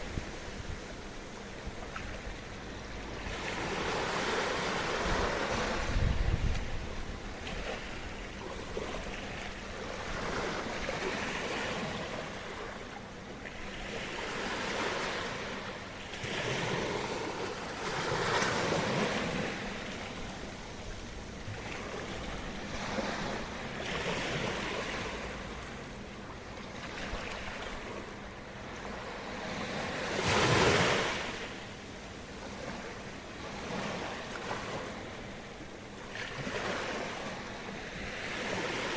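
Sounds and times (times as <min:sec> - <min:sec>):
small waves washing ashore: 0:00.0 - 0:38.9
wind buffeting microphone: 0:04.9 - 0:08.2.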